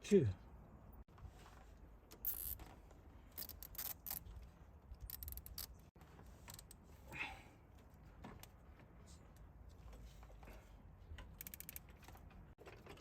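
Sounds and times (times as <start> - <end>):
cable ties ratcheting: 2.1 - 2.6, 3.3 - 4.3, 5.0 - 5.8, 11.2 - 12.0.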